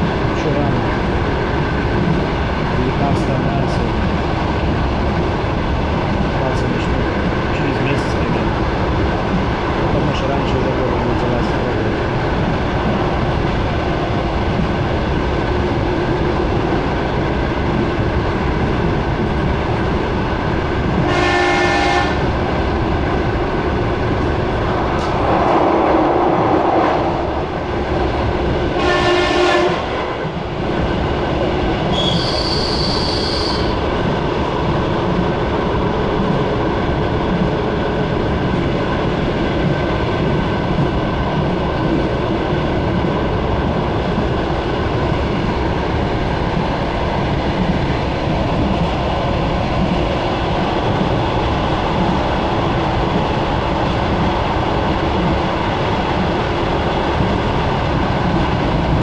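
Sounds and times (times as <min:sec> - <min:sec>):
train wheels rumbling: 0:00.0 - 0:59.0
train horn blasts: 0:21.0 - 0:22.3, 0:28.8 - 0:29.9
high wheel squeal: 0:31.9 - 0:33.8.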